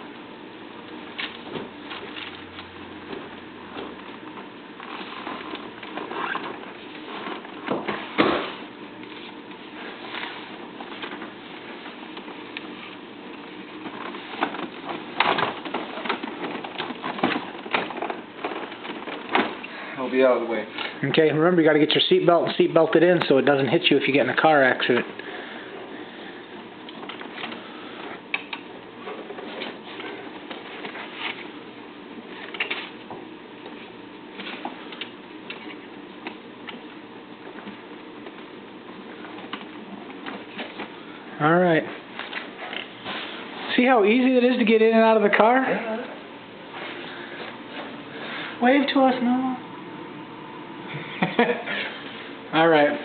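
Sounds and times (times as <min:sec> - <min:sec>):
wheelchair frame clicks and rattles: 0:04.8 - 0:08.3, 0:13.8 - 0:19.6.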